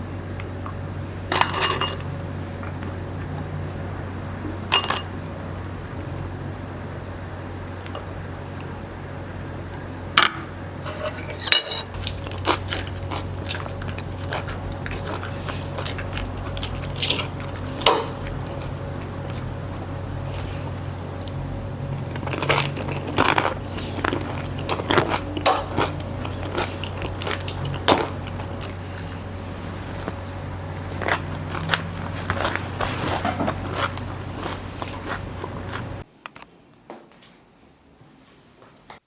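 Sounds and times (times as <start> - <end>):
steady low hum: 0.0 - 36.1
cutlery clinking against dishes: 10.8 - 12.2, 24.7 - 26.6.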